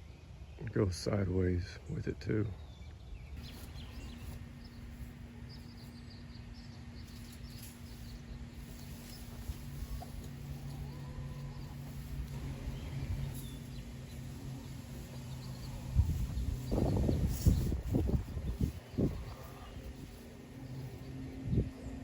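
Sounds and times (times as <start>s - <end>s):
small birds chirping: 0.0s - 22.0s
steady low hum: 0.0s - 22.0s
hens clucking softly: 8.7s - 13.4s, 15.0s - 20.3s.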